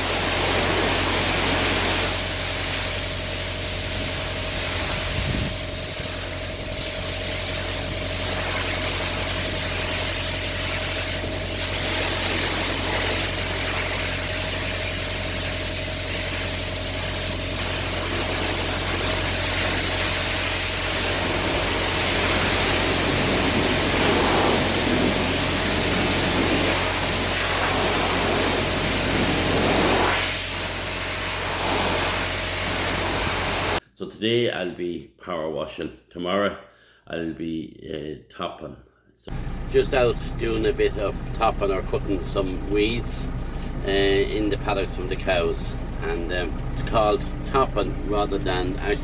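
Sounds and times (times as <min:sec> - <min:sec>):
high-pressure water jet hiss: 0:00.0 - 0:33.8
pressure washer motor hum: 0:00.0 - 0:33.8, 0:39.3 - 0:49.0.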